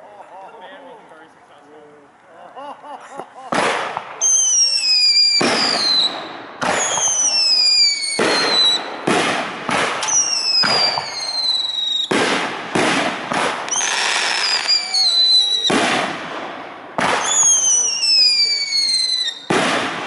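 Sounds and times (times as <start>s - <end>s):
firework shells bursting: 3.5s - 20.0s
firework whistles falling in pitch: 4.2s - 8.9s, 10.0s - 12.1s, 13.7s - 15.7s, 17.2s - 19.6s.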